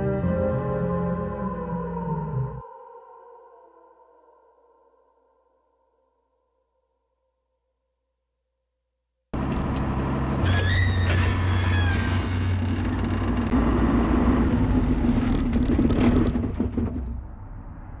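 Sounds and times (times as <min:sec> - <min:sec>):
tractor engine running: 0:09.4 - 0:17.3
high squeal: 0:10.4 - 0:13.2.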